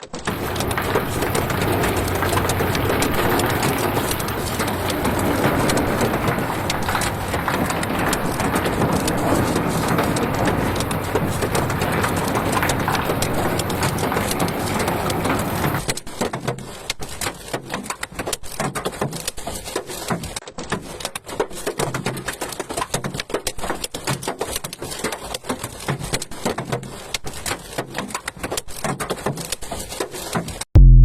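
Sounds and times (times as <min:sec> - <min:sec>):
hailstones striking hard surface: 0:00.2 - 0:30.4.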